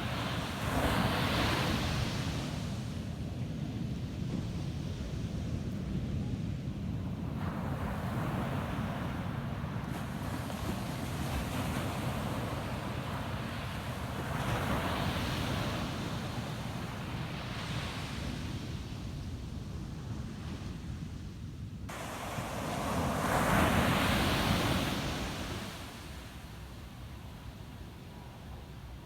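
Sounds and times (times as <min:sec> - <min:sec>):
surf breaking on sandy beach: 0:21.9 - 0:26.6.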